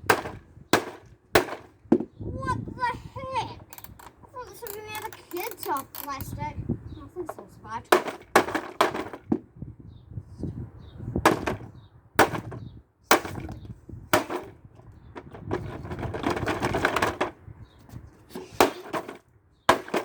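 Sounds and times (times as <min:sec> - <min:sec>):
hammer striking plastic: 0:00.0 - 0:02.1, 0:08.0 - 0:09.4, 0:11.3 - 0:11.6, 0:12.2 - 0:13.6, 0:18.6 - 0:20.0.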